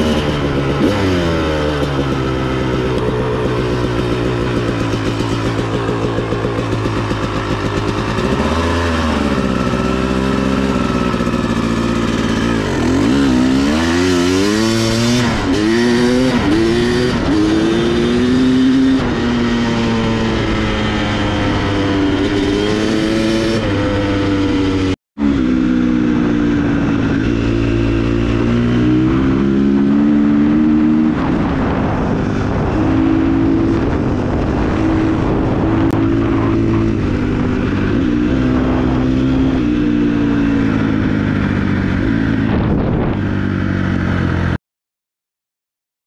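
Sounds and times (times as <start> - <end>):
dirt bike engine revving: 0.0 - 44.6.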